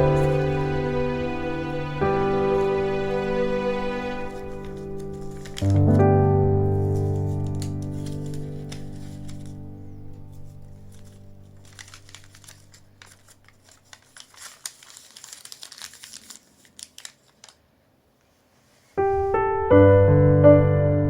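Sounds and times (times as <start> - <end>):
piano music: 0.0 - 13.2, 19.0 - 21.0
soft background music: 0.0 - 14.4, 19.0 - 21.0
paper crinkling: 0.0 - 17.8.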